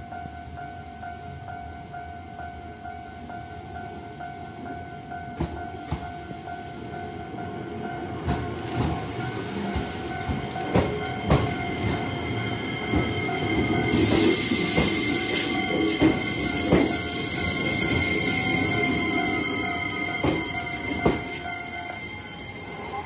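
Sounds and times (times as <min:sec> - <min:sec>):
crossing warning bell ringing: 0:00.0 - 0:23.0
loud rushing hiss of passing train: 0:02.7 - 0:23.0
train wheels clicking over rail joints: 0:08.2 - 0:22.0.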